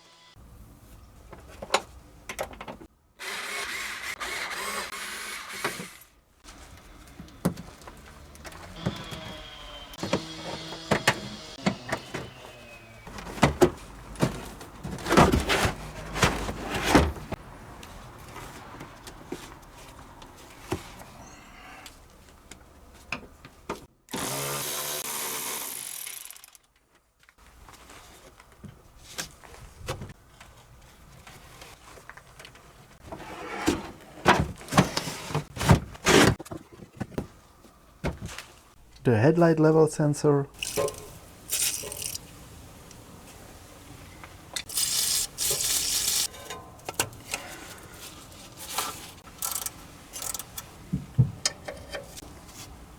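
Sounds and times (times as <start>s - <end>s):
power tool running: 8.8s - 13.1s, 24.1s - 26.6s
tools clanking against metal: 40.6s - 42.1s, 46.2s - 47.9s, 49.3s - 52.3s.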